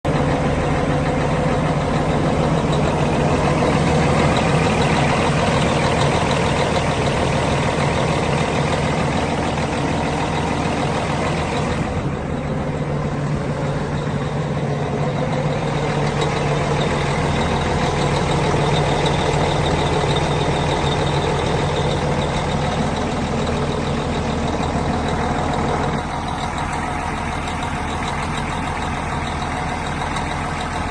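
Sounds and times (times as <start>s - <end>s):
heavy truck engine idling: 0.0s - 30.9s.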